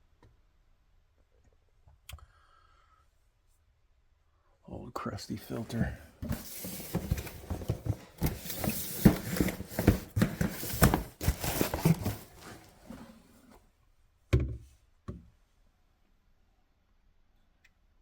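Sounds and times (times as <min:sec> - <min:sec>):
objects rattling and clicking: 0:06.2 - 0:13.2.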